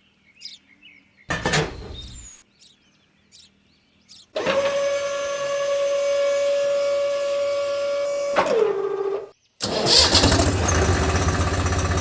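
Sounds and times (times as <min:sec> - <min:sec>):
small motor whining: 0:04.4 - 0:12.0.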